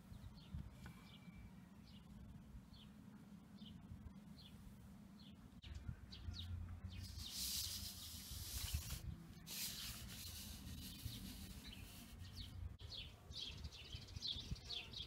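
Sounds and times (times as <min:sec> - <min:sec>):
faint bird chirping: 0:00.0 - 0:15.0
rubbing rustling noise: 0:07.1 - 0:12.6.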